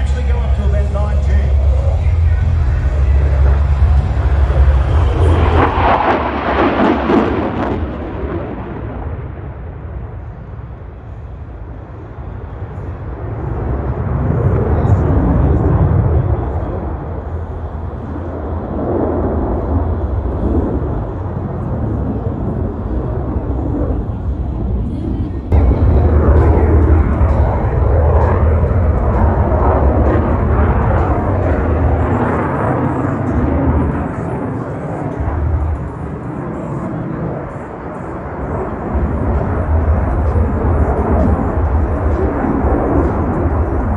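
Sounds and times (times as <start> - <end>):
jet engine rumble: 0.0 - 43.9.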